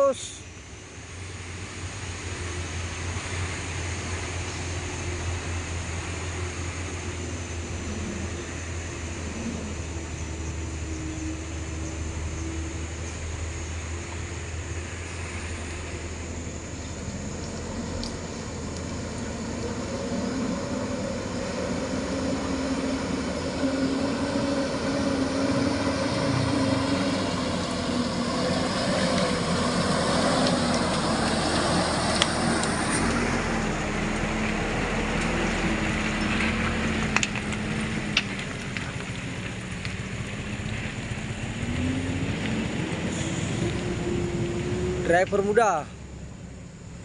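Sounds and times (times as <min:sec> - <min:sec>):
truck engine running under load: 0:00.0 - 0:47.0.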